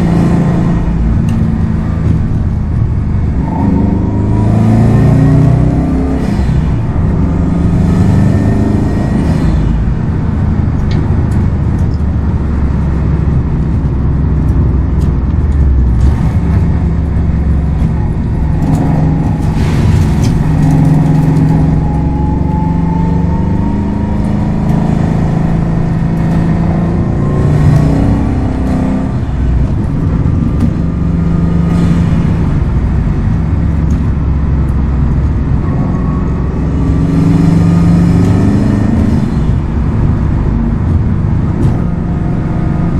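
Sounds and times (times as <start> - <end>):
car engine revving: 0.0 - 42.9
tyre and road noise: 0.0 - 42.9
high whine rising: 15.5 - 42.9.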